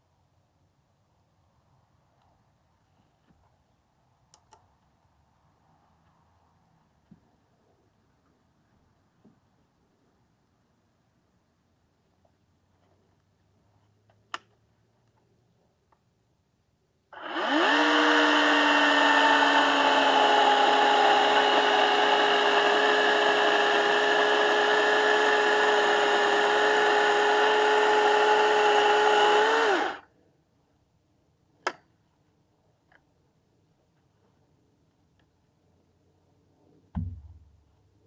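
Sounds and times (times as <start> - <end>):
electric chainsaw motor running: 17.2 - 30.0.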